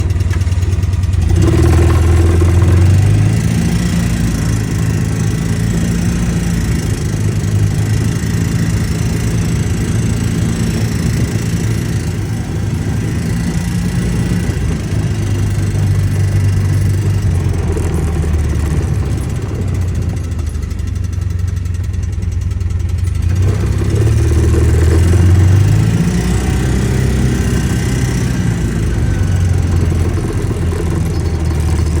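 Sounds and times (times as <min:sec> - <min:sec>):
utility vehicle engine running: 0:00.0 - 0:32.0.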